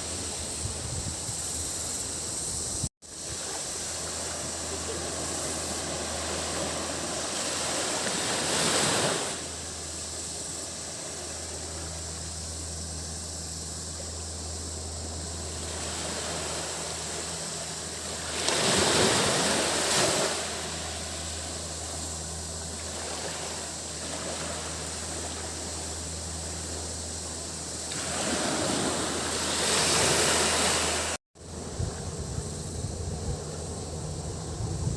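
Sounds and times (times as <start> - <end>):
cicadas droning: 0.0 - 34.9
low steady hum: 0.0 - 34.9
sea waves washing onto beach: 3.1 - 11.9, 15.5 - 31.2.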